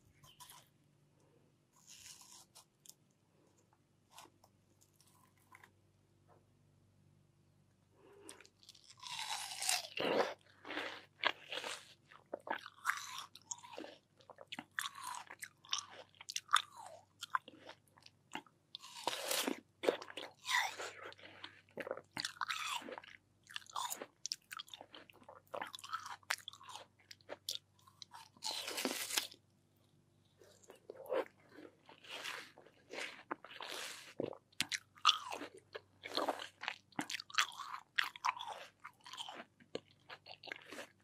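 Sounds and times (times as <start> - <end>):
watermelon crunching and chewing: 1.8 - 3.0, 8.3 - 29.4, 30.5 - 41.0.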